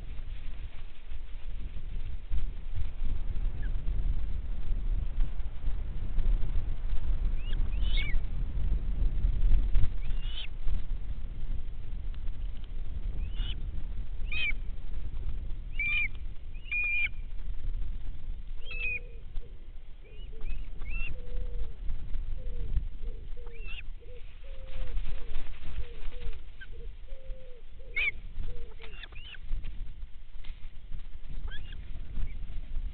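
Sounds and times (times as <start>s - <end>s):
steady low rumble: 0.0s - 32.9s
birds calling: 15.7s - 17.2s, 18.6s - 21.7s, 22.4s - 29.4s.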